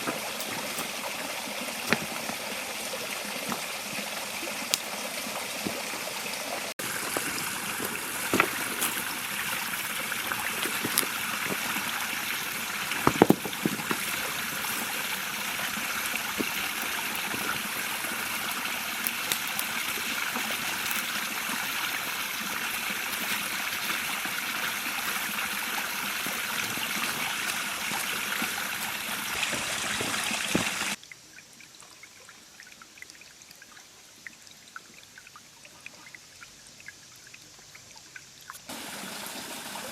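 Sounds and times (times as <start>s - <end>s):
river babbling over stones: 0.0s - 31.0s
water splashes: 0.0s - 37.0s.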